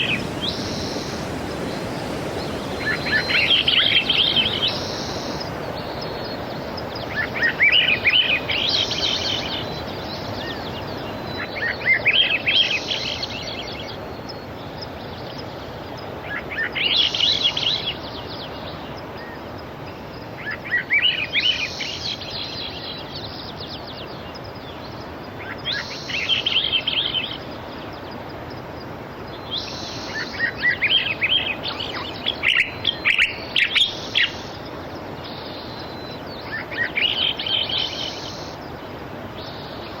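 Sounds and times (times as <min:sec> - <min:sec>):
sea surf: 0:00.0 - 0:14.2, 0:25.2 - 0:40.0
songbird chirping song: 0:00.0 - 0:40.0.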